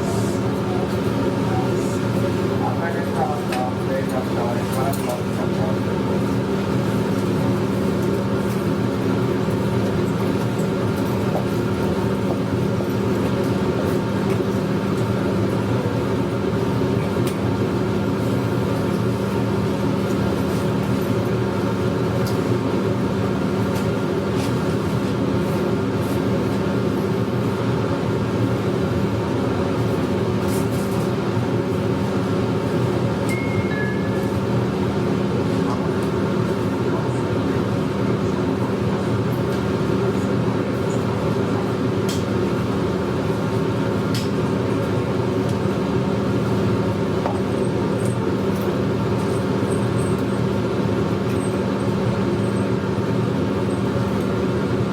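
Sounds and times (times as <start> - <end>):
electric train motors humming: 0.0 - 30.4.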